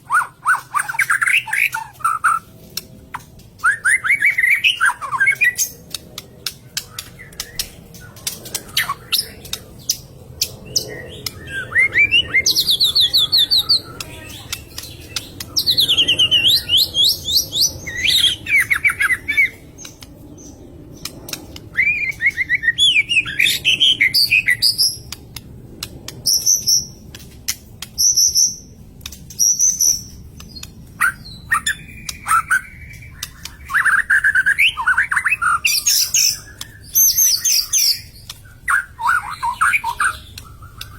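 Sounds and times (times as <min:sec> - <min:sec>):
sharp bird clicks: 0:00.2 - 0:40.9
bird singing whistled phrases: 0:03.6 - 0:05.6, 0:10.9 - 0:19.6, 0:21.7 - 0:24.8, 0:31.0 - 0:38.1.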